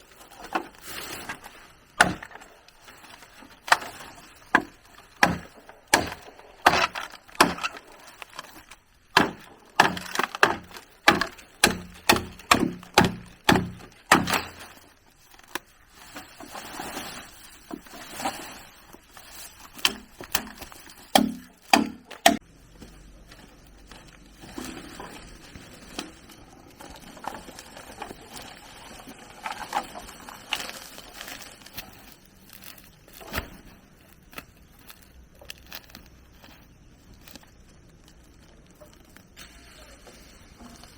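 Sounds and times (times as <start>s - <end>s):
bamboo chopping strikes: 2.0s - 2.4s, 4.5s - 7.8s, 9.1s - 14.7s, 19.8s - 22.4s.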